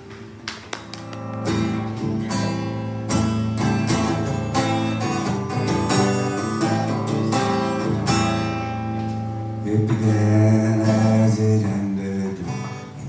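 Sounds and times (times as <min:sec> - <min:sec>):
acoustic guitar strumming chords: 0:01.0 - 0:13.0.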